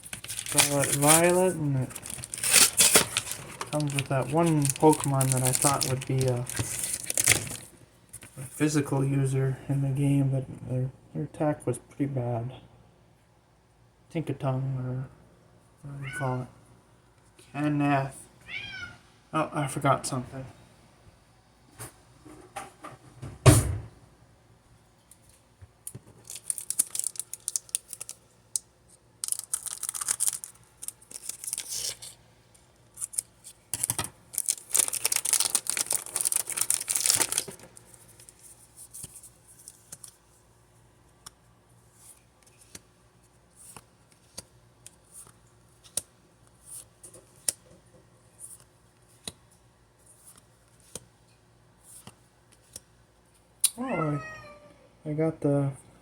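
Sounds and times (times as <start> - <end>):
card pack packaging tearing: 0.0 - 7.7, 26.2 - 28.2, 29.2 - 32.2, 33.0 - 37.8.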